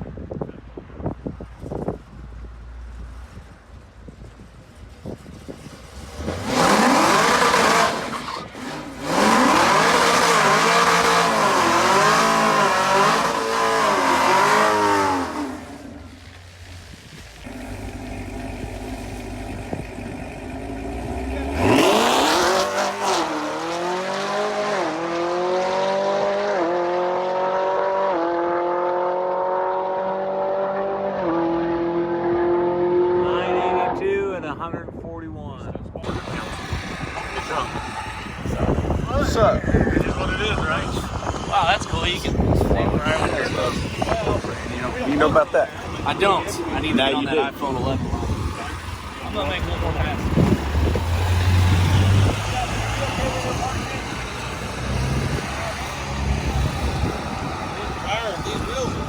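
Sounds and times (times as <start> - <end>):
drag car engine revving: 4.8 - 33.8, 36.0 - 59.0
tire squeal: 5.4 - 16.3, 36.0 - 59.0.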